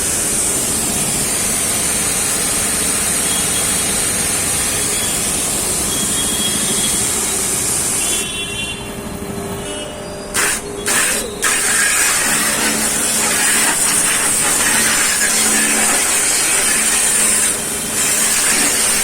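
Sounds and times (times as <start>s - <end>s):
pressure washer spraying hiss: 10.4s - 19.0s
pump and motor humming: 10.4s - 19.0s.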